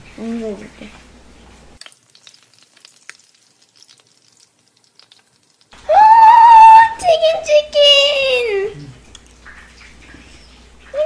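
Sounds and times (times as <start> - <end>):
food frying crackling: 0.0 - 11.0.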